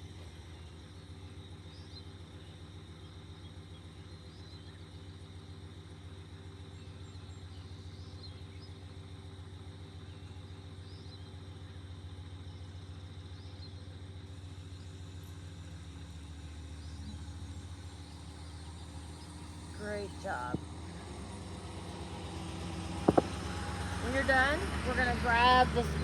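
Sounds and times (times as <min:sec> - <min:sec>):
low motor hum: 0:00.0 - 0:26.0
faint bird chirps: 0:00.4 - 0:21.1.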